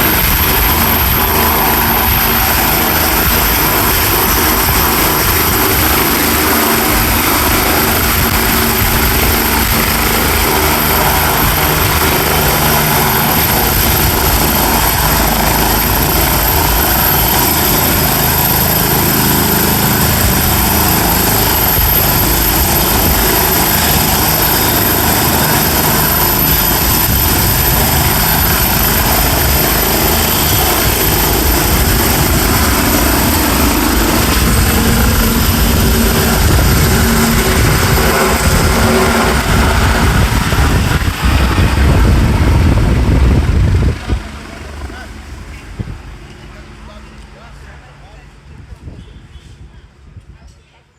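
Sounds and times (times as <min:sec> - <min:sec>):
helicopter turbine and rotor noise: 0:00.0 - 0:50.9
high steady turbine whine: 0:00.0 - 0:50.9.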